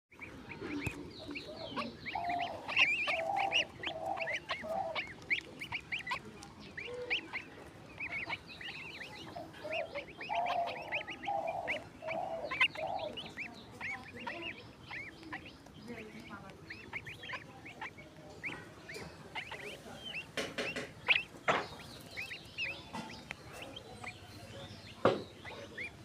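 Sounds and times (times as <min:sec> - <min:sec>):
birds chirping: 0:00.1 - 0:26.0
swans honking: 0:00.1 - 0:26.0.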